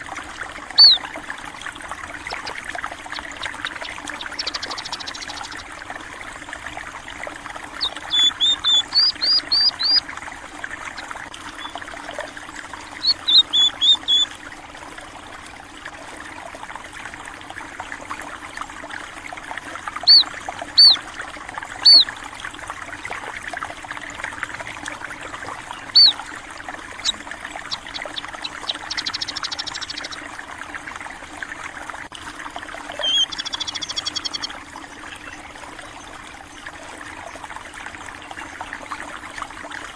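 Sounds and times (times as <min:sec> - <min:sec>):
stream water trickling: 0:00.0 - 0:39.9
buzzy bird trill: 0:00.7 - 0:01.1, 0:03.2 - 0:05.6, 0:07.8 - 0:10.0, 0:12.8 - 0:14.3, 0:20.0 - 0:21.0, 0:21.8 - 0:22.1, 0:25.8 - 0:26.2, 0:26.9 - 0:30.2, 0:33.0 - 0:34.6
songbirds chirping: 0:00.7 - 0:01.1, 0:02.2 - 0:05.7, 0:07.6 - 0:10.1, 0:10.7 - 0:14.3, 0:20.0 - 0:21.0, 0:21.8 - 0:22.1, 0:25.4 - 0:30.3, 0:32.9 - 0:35.5.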